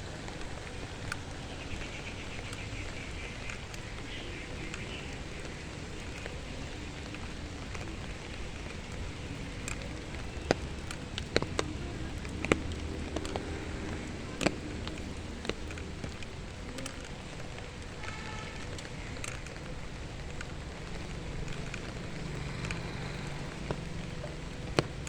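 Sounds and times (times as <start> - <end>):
outdoor rushing noise: 4.8 - 25.0.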